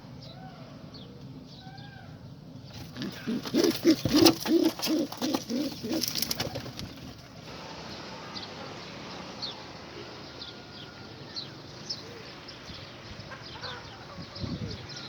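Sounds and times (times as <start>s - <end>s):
pigeons chirping: 2.6s - 9.6s.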